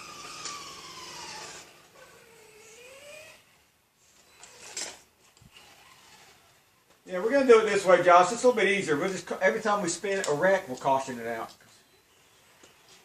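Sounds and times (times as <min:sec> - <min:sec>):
electric motor whine of toy cars: 0:00.0 - 0:06.7.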